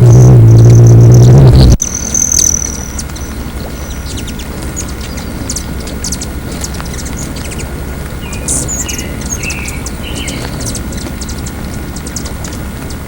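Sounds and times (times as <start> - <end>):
hummingbirds chittering: 0.0 - 13.0
steady low rumble: 0.0 - 13.0.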